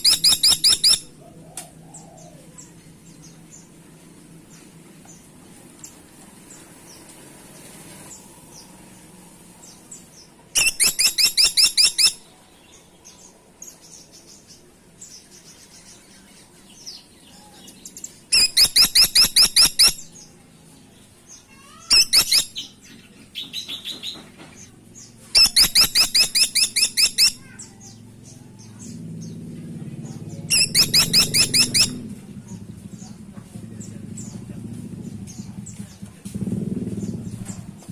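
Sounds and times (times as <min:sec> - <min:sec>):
woodpecker rattling call: 0:00.0 - 0:01.1, 0:10.6 - 0:12.2, 0:18.3 - 0:20.0, 0:21.7 - 0:22.7, 0:25.4 - 0:27.6, 0:30.5 - 0:32.1.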